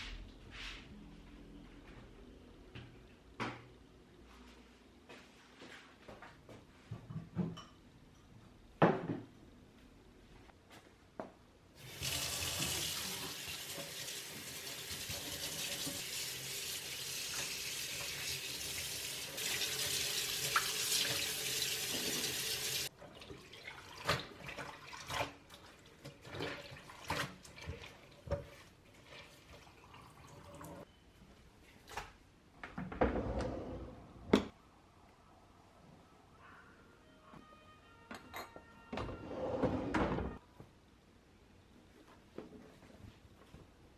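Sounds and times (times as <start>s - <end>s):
water tap running into sink: 11.8s - 25.3s.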